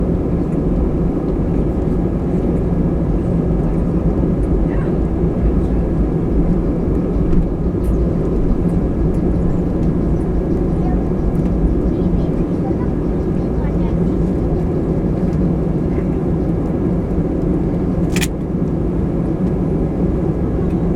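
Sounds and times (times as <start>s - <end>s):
light clicks: 18.1s - 18.3s.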